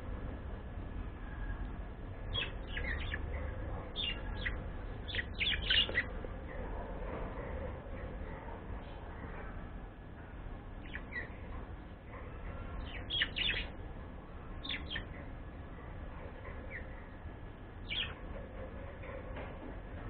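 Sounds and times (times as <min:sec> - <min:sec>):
low background hum: 0:00.0 - 0:20.0
pet bird chirping: 0:02.3 - 0:06.7, 0:10.8 - 0:11.5, 0:12.2 - 0:13.8, 0:14.5 - 0:15.4, 0:16.2 - 0:17.2, 0:17.8 - 0:18.4.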